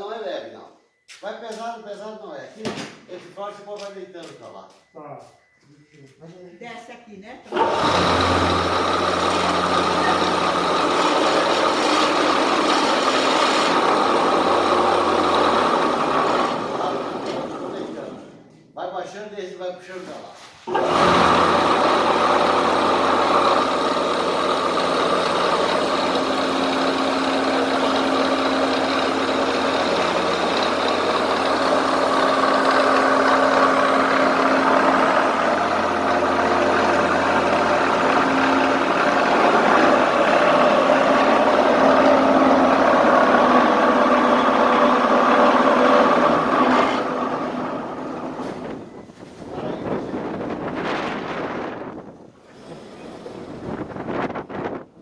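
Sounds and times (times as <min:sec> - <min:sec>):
vehicle engine running: 0:07.5 - 0:18.3, 0:20.7 - 0:50.8.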